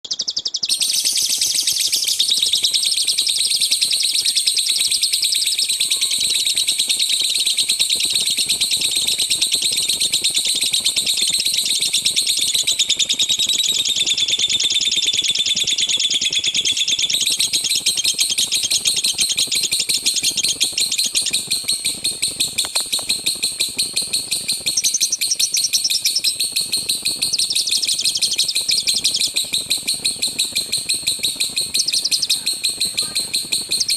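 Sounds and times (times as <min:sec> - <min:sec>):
lovebird singing rapid chattering: 0:00.1 - 0:08.7, 0:24.7 - 0:26.5, 0:27.1 - 0:29.4, 0:31.3 - 0:33.9.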